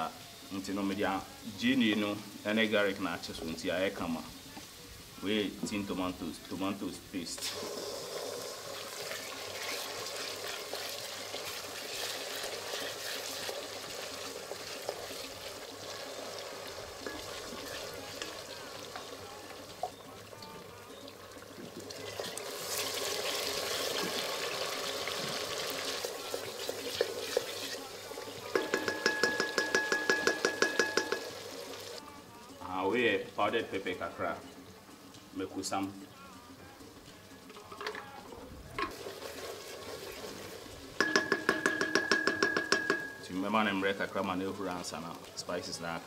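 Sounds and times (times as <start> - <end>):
food sizzling in hot oil: 0.0 - 46.0
wooden spoon stirring: 8.8 - 24.3, 25.2 - 31.5, 38.8 - 43.7
fast ringing knocks: 28.6 - 31.3, 41.0 - 43.2.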